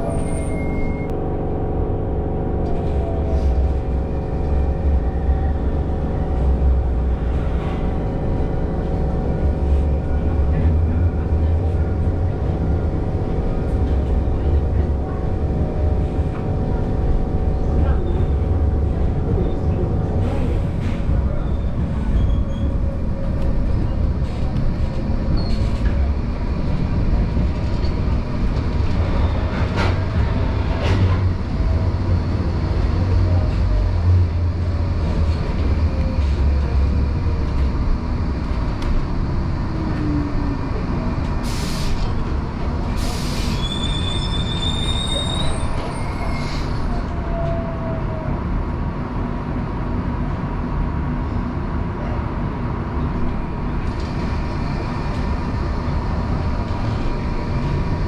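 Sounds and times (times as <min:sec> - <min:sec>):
high wheel squeal: 0:00.0 - 0:01.1, 0:43.1 - 0:46.9
tram rumbling on rails: 0:00.0 - 0:58.0.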